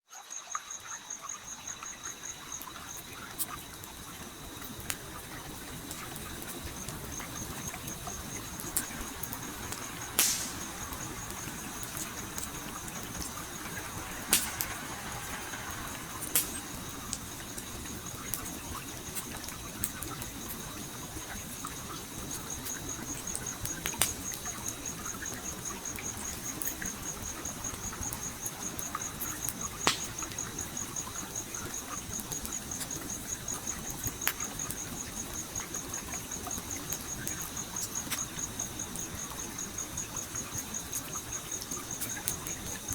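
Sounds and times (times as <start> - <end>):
stream water flowing: 0.2 - 32.1
insect trilling: 0.4 - 42.9
wood fire crackling: 1.4 - 42.9.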